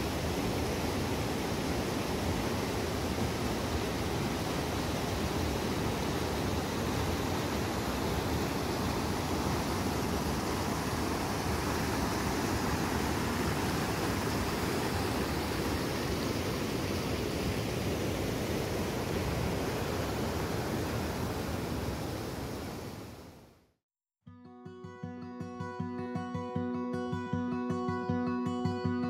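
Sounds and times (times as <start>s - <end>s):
stream rushing over rocks: 0.0s - 23.2s.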